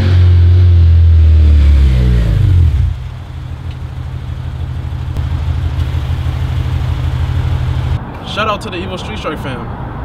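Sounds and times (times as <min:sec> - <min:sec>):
louder engine sound: 0:00.0 - 0:08.0
car engine idling: 0:00.3 - 0:08.0.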